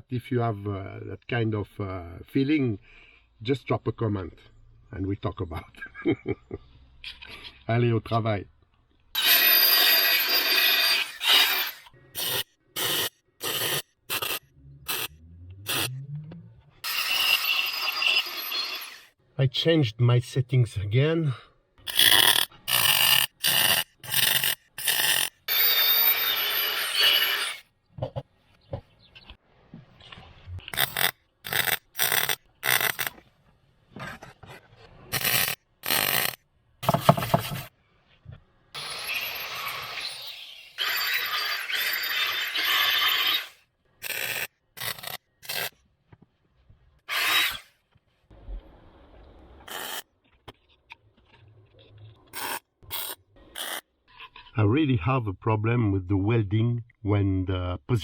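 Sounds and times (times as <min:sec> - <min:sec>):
welding crackling: 0:30.7 - 0:33.2.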